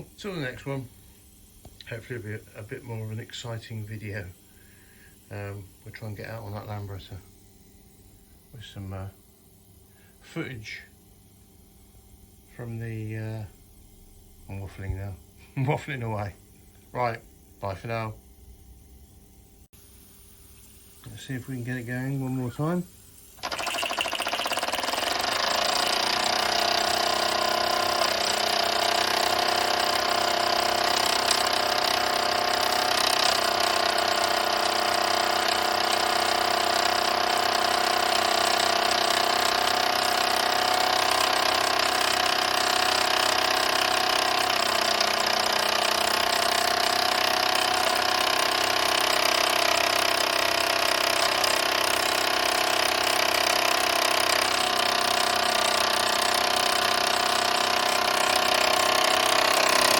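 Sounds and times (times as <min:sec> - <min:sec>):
toy steam engine running: 0:00.0 - 0:07.9, 0:20.5 - 0:59.9
steam hissing: 0:00.0 - 0:11.3, 0:19.8 - 0:25.6.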